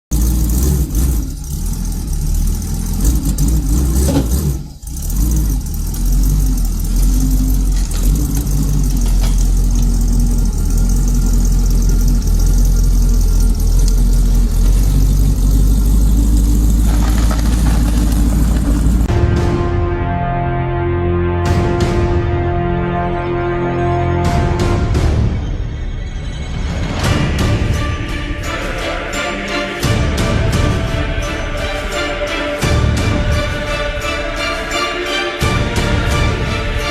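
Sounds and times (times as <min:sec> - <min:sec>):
van engine revving: 0:00.0 - 0:19.2.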